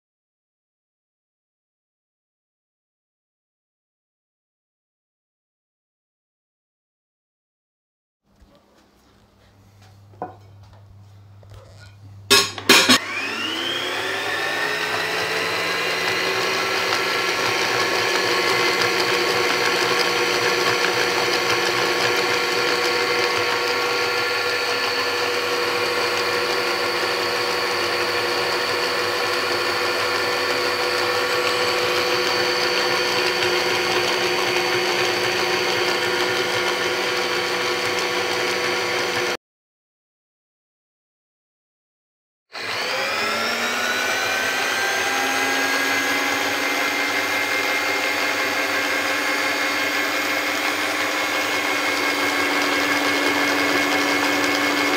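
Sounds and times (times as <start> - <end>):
food mixer motor running: 12.3 - 39.4, 42.6 - 54.9.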